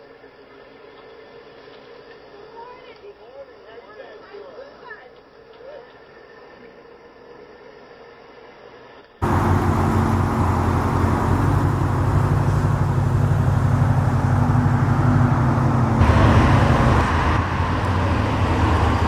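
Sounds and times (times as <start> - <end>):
car engine running: 9.2 - 19.0.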